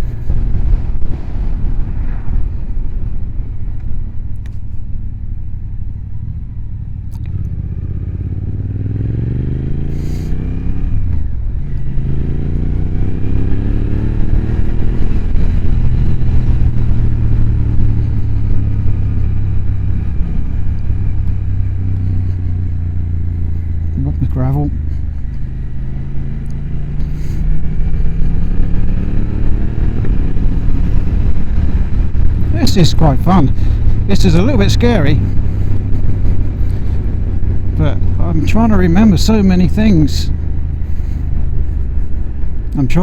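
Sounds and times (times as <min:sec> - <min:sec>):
motorcycle engine accelerating: 0:00.0 - 0:43.0
wind rumble: 0:00.0 - 0:43.0.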